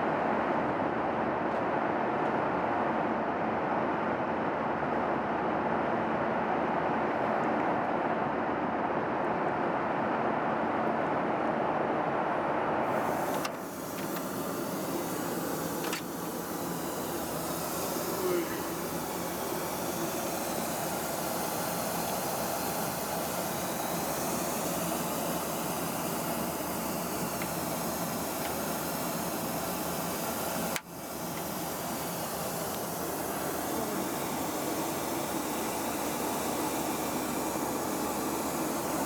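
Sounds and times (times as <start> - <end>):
airliner cabin noise: 10.2 - 39.0.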